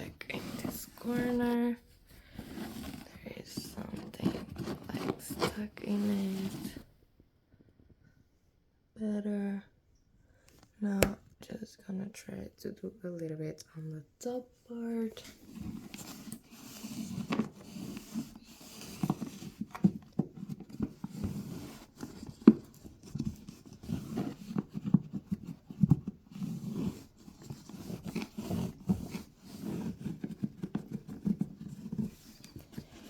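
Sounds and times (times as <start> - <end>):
toothbrush scraping plastic: 2.5 - 6.8.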